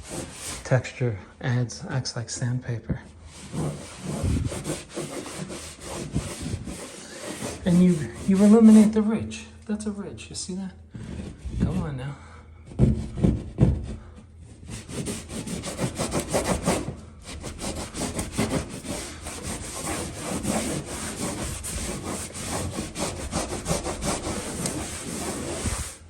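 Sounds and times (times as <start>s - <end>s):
rag scrubbing plaster: 0.0s - 0.8s, 3.3s - 9.1s, 12.8s - 26.0s
knocks: 12.7s - 14.0s.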